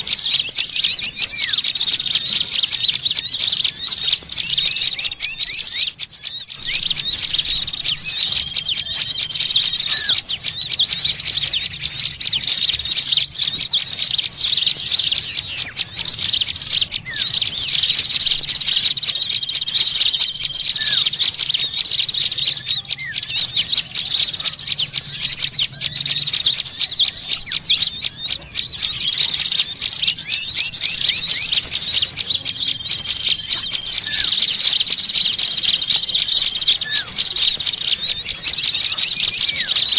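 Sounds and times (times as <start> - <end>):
short steady bird whistles: 0.0 - 13.1
songbirds chirping: 0.0 - 39.9.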